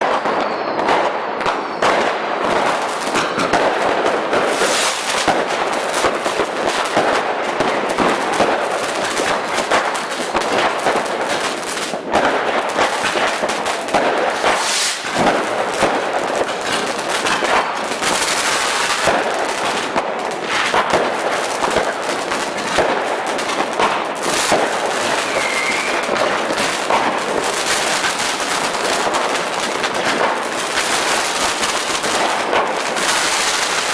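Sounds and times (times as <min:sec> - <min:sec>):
fireworks crackling and banging: 0:00.0 - 0:33.9.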